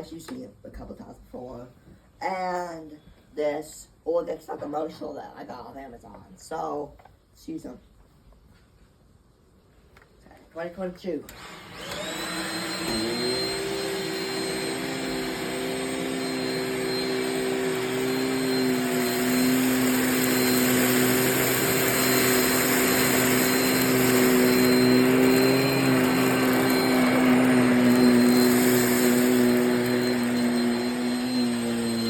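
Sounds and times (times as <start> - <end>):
vacuum motor whine: 11.3 - 32.0.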